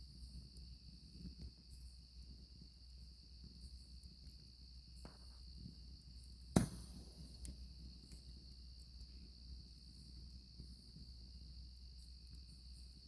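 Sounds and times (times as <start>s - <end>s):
campfire crackling: 0.0s - 13.0s
crickets trilling: 0.0s - 13.0s
burning wood popping: 6.4s - 8.4s.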